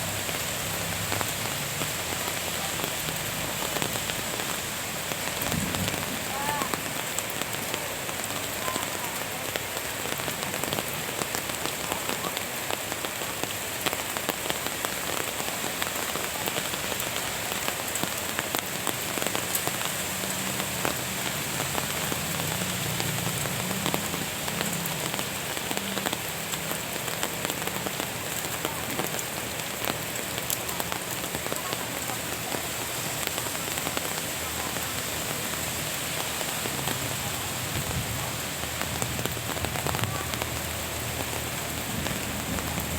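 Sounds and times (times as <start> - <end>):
raindrops tapping: 0.0 - 42.9
steady rain falling: 0.0 - 42.9.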